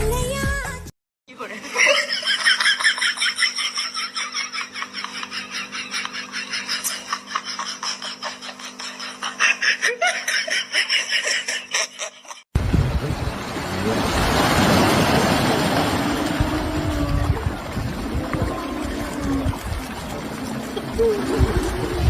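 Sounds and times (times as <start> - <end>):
high-pitched laughter: 1.7 - 12.5.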